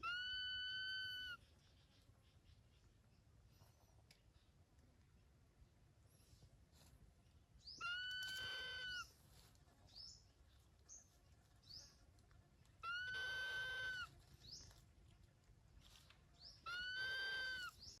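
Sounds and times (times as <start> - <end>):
animal long steady cries: 0.0 - 1.4, 7.8 - 9.1, 12.8 - 14.2, 16.6 - 17.8.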